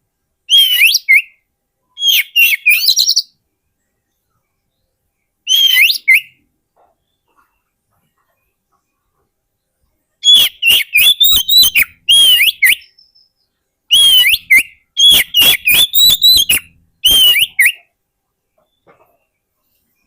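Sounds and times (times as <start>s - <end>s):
bird singing whistled notes: 0.5s - 3.4s, 4.1s - 6.4s, 10.2s - 19.4s.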